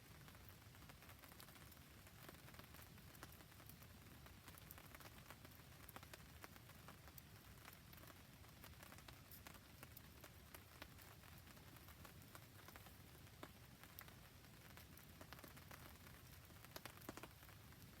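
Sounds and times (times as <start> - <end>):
campfire crackling: 0.0 - 18.0
rain falling: 0.0 - 18.0.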